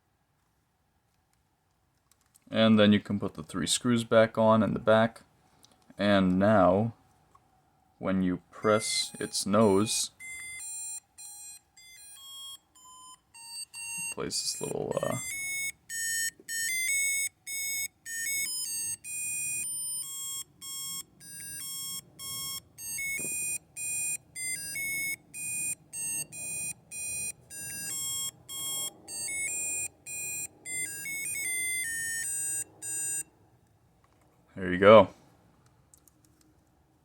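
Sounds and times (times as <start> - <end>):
toy beeping tune: 8.6 - 33.3.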